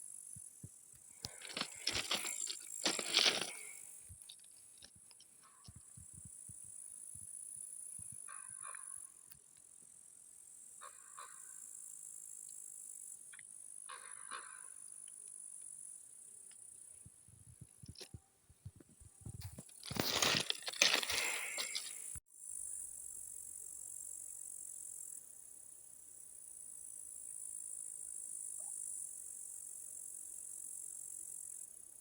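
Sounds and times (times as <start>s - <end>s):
high insect chirring: 0.1s - 4.9s, 19.5s - 25.2s.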